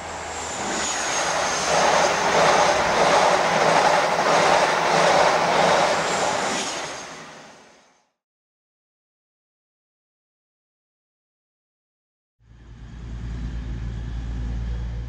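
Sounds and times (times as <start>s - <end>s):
thin high whine: 0.0s - 7.9s
train noise: 0.0s - 8.0s.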